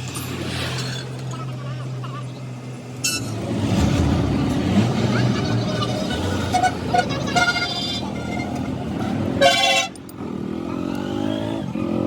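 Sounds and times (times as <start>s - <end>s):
road traffic: 0.0s - 12.0s
vehicle horns honking: 3.0s - 3.4s, 5.5s - 10.0s.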